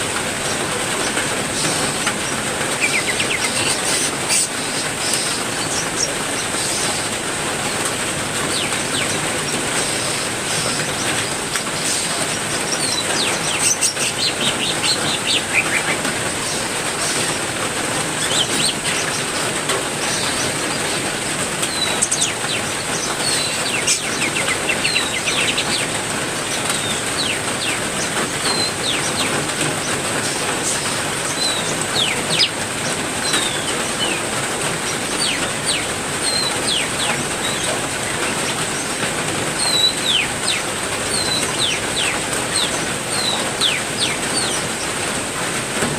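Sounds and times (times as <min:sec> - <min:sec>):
heavy rain: 0:00.0 - 0:45.9
songbirds chirping: 0:00.0 - 0:45.9.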